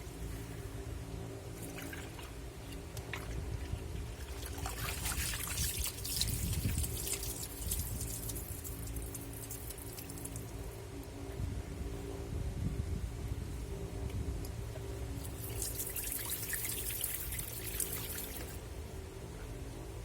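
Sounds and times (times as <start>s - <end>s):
steady low hum: 0.0s - 20.0s
water splashing in washing machine: 1.6s - 10.4s, 15.2s - 18.6s.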